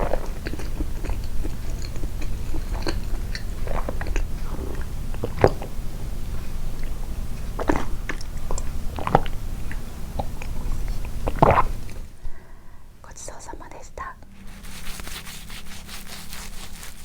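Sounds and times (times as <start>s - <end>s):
chewing soft sweets: 0.0s - 12.3s
low hum: 0.0s - 17.0s
sharp mouth clicks: 7.6s - 12.1s.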